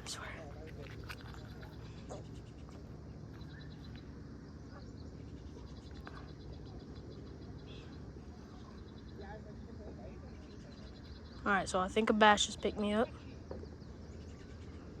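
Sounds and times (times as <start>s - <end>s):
insect or frog chorus chirping: 0.0s - 15.0s.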